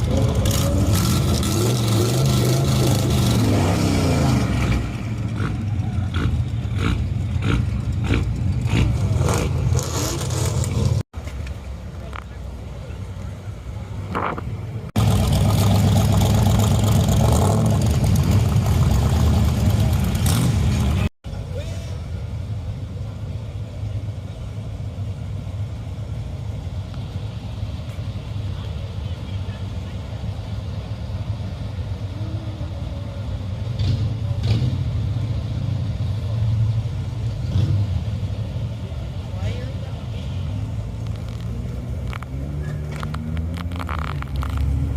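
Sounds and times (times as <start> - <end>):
car engines rumbling: 0.0 - 44.9
car engine running: 14.0 - 21.1.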